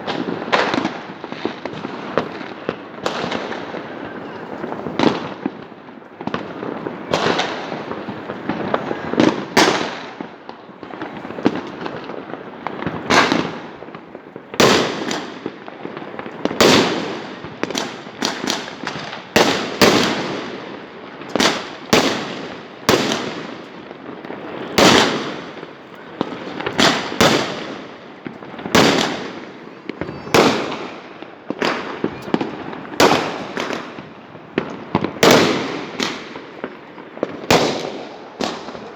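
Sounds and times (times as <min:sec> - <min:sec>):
fireworks bangs: 0:00.0 - 0:38.9
fireworks crackling: 0:00.0 - 0:38.9.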